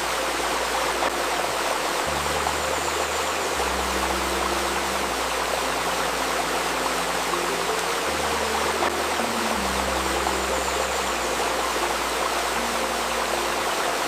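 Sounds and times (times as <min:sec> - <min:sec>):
low healing music drone: 0:00.0 - 0:14.0
stream babbling over stones: 0:00.0 - 0:14.0.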